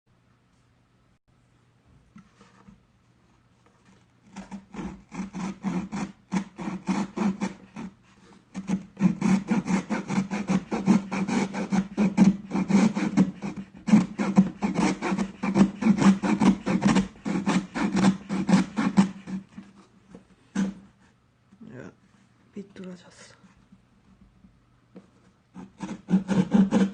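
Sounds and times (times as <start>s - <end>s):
rasping sawing on cardboard: 4.3s - 19.9s, 20.5s - 21.1s, 25.5s - 26.9s.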